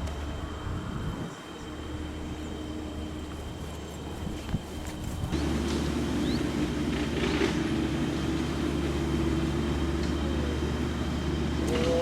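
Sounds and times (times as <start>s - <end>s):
golf cart motor hum: 4.9s - 12.0s.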